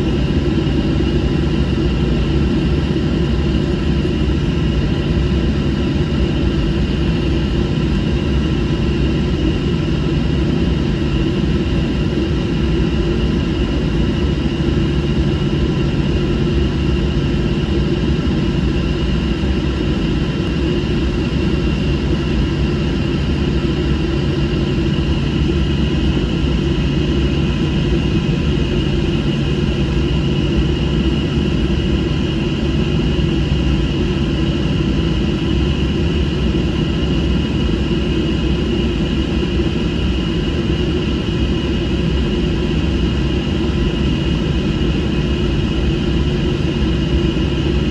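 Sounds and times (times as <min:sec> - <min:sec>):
airliner cabin engine rush: 0:00.0 - 0:47.9
constant hum: 0:00.0 - 0:47.9.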